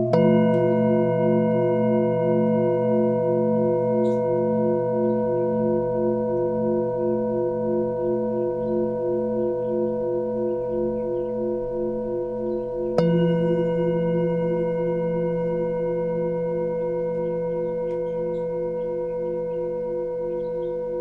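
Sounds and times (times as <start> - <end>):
singing bowl struck: 0.0 - 21.0
singing bowls ringing: 0.0 - 21.0
small birds chirping: 8.0 - 13.2, 16.8 - 21.0.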